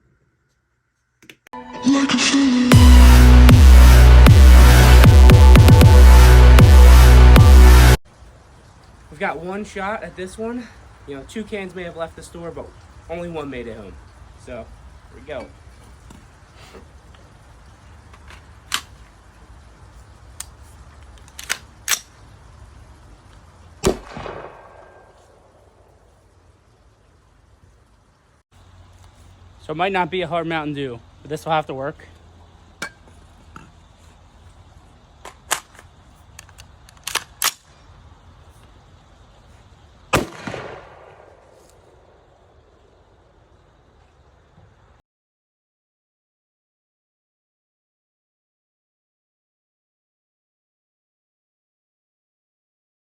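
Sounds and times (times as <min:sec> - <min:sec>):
gunshot: 0:23.8 - 0:25.2, 0:40.2 - 0:41.6.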